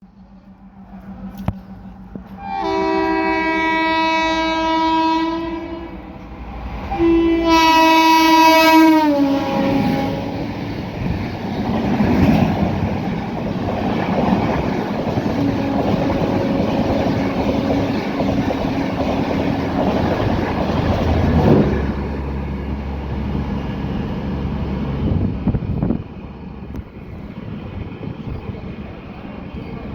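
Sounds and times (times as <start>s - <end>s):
locomotive horn blasts: 2.4s - 6.2s, 6.9s - 10.6s, 15.3s - 17.9s
train coaches clattering on rails: 9.4s - 22.5s.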